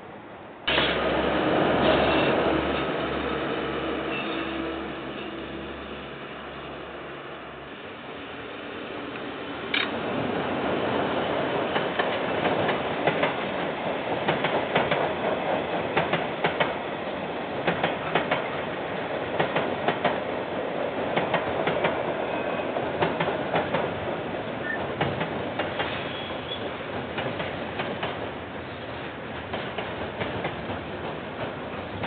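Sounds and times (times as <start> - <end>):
train wheels rolling on track: 0.6 - 32.0.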